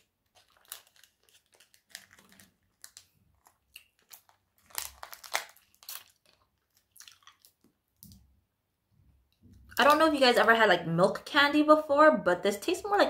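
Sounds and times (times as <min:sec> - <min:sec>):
person chewing candy: 0:00.0 - 0:08.2.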